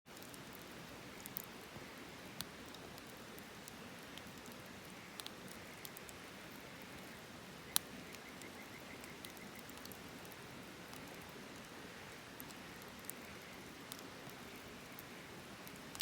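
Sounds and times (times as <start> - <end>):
wood campfire crackling: 0.1 - 16.0.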